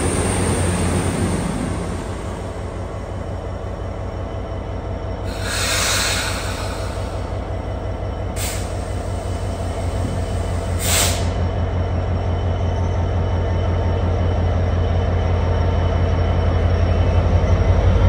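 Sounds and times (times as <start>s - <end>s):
train rumbling: 0.0s - 18.0s
train hissing: 5.2s - 11.6s.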